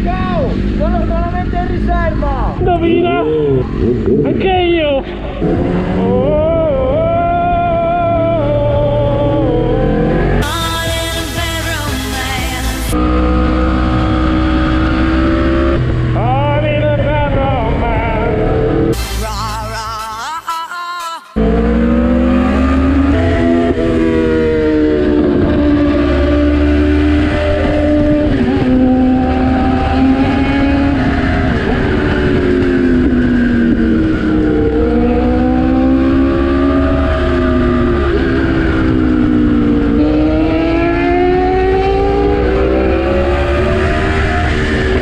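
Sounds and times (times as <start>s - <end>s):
wind rush on microphone: 0.0s - 10.4s, 23.0s - 45.0s
motorcycle engine accelerating: 0.0s - 19.1s, 21.4s - 45.0s.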